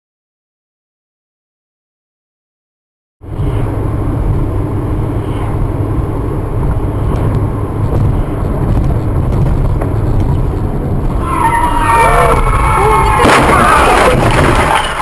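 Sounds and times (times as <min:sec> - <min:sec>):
vehicle engine and road rumble: 0:03.2 - 0:15.0.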